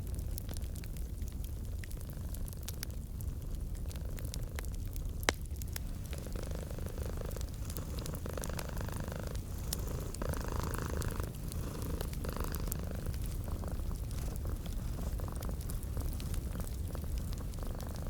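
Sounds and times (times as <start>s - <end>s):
wood fire crackling: 0.0s - 18.0s
cat purring: 1.9s - 4.7s, 5.6s - 18.0s.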